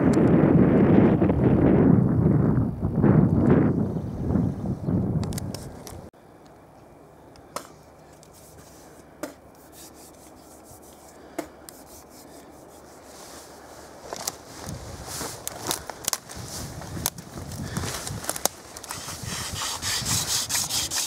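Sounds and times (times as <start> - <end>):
wood rubbing against wood: 8.3 - 15.7, 18.8 - 21.0.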